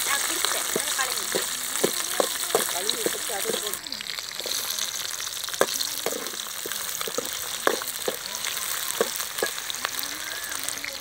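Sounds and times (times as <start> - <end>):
food sizzling in a wok: 0.0 - 11.0
ladle scraping a pan: 4.4 - 9.8.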